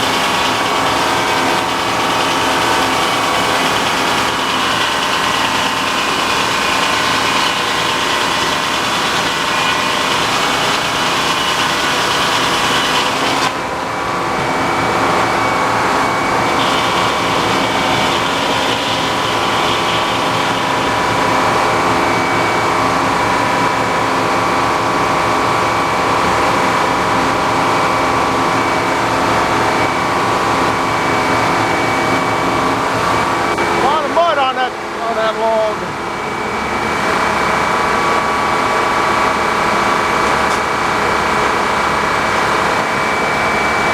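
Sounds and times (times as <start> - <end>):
saw blade cutting log: 0.0 - 13.7, 16.2 - 22.0
tractor engine running: 0.0 - 14.2, 15.0 - 22.0
spinning mill whine: 0.0 - 43.9.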